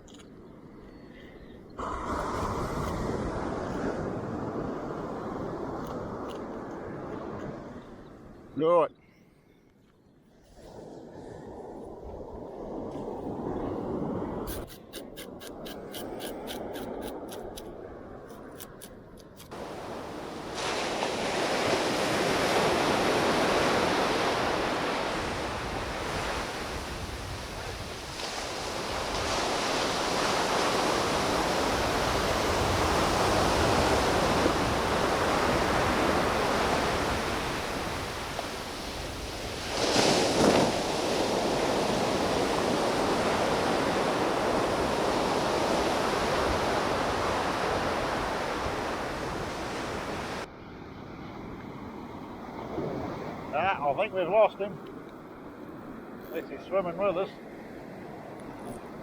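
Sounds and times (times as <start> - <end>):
wind on microphone: 0.0 - 8.5, 10.5 - 50.5
surf breaking on a beach: 1.8 - 8.3, 19.5 - 59.0.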